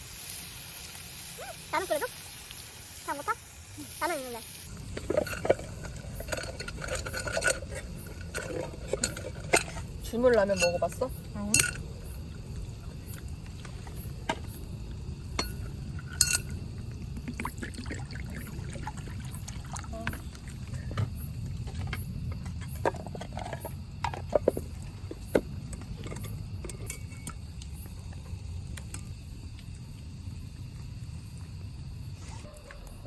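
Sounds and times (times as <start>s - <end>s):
cookware and utensils clinking: 4.8s - 12.0s, 15.3s - 16.6s, 25.8s - 27.4s
liquid sloshing: 15.9s - 21.0s.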